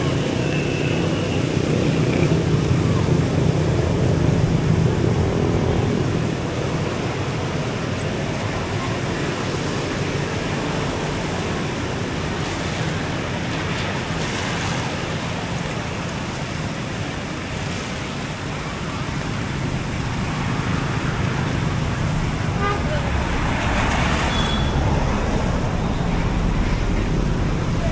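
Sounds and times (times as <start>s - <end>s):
beach surf: 0.0s - 27.9s
road traffic: 0.0s - 27.9s
vehicle engine low rumble: 19.1s - 27.9s.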